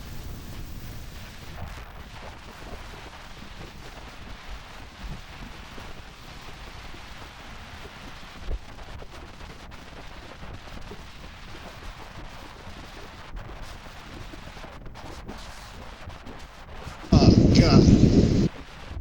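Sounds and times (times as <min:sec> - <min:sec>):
wind buffeting microphone: 0:16.2 - 0:19.0.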